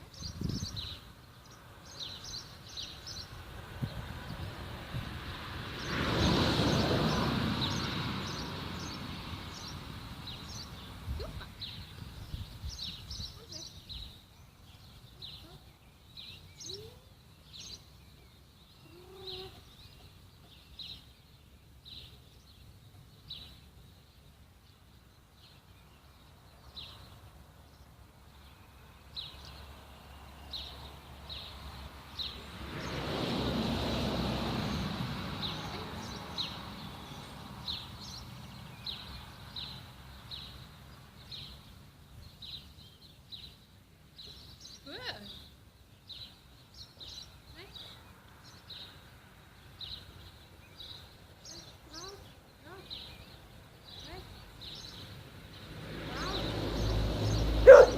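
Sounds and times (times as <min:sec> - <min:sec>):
bird chirping: 0:00.0 - 0:04.5, 0:06.7 - 0:33.0, 0:34.7 - 0:57.9
broad rushing noise: 0:02.7 - 0:11.8, 0:30.8 - 0:38.2.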